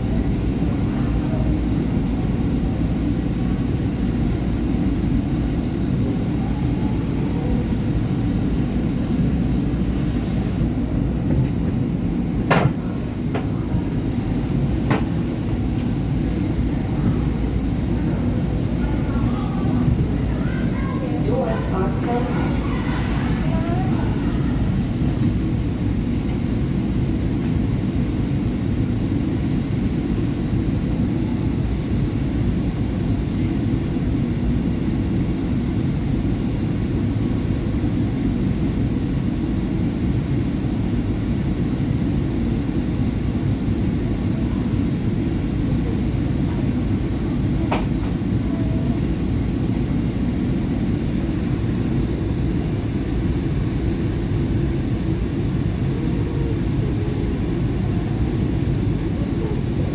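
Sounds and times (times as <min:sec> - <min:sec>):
train wheels rumbling on rail: 0:08.9 - 0:27.7, 0:47.5 - 0:48.4.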